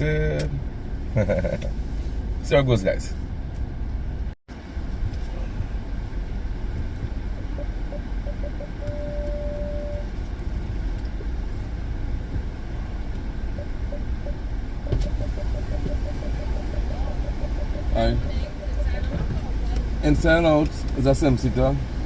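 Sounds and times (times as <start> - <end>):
car engine low rumble: 0.0 - 22.0
soft beeps: 7.3 - 10.1, 13.5 - 19.8.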